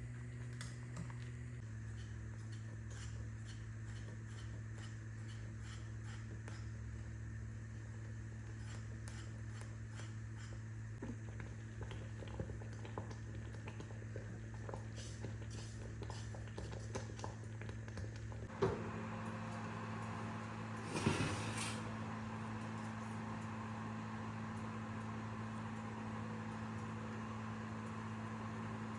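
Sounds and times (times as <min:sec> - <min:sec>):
low appliance hum: 0:00.0 - 0:28.9
scraping rustle: 0:20.8 - 0:21.9.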